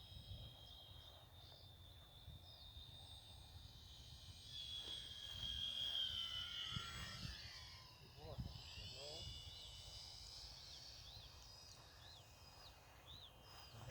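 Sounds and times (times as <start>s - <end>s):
model plane motor whining: 0.0s - 13.9s.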